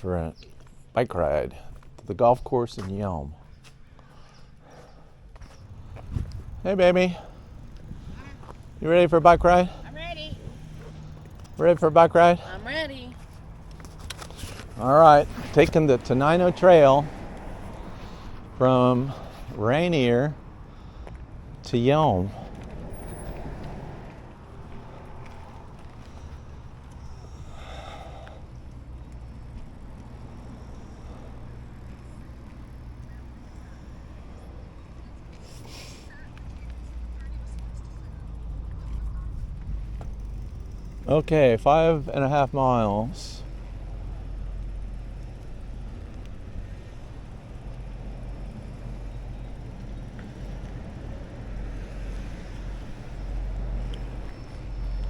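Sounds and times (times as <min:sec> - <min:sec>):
wind rumble on microphone: 0:05.5 - 0:06.7, 0:07.4 - 0:08.8.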